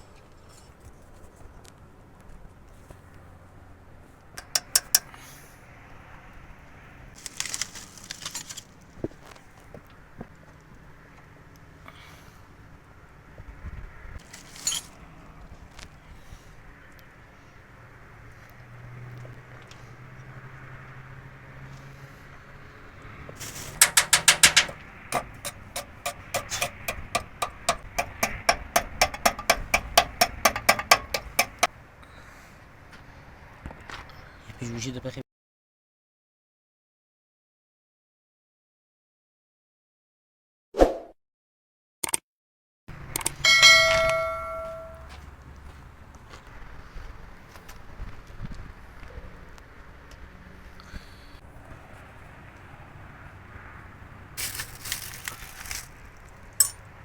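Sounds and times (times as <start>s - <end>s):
metal parts clattering: 4.4s - 5.1s, 7.2s - 8.7s, 14.2s - 15.0s, 23.4s - 31.7s
hammer striking metal: 4.4s - 5.2s, 23.4s - 31.7s, 43.4s - 45.1s
sharp tool clicks: 4.4s - 5.2s, 23.4s - 31.7s.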